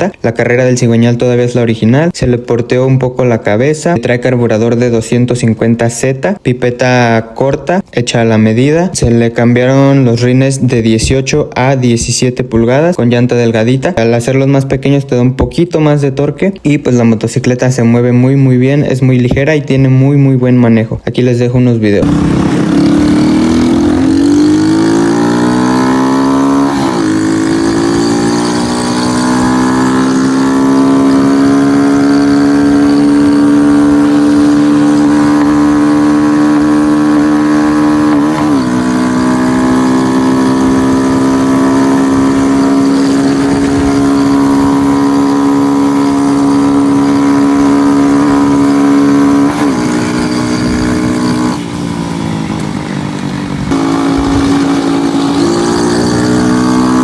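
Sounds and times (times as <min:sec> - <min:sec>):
motorcycle engine pulling hard: 0:22.0 - 0:57.0.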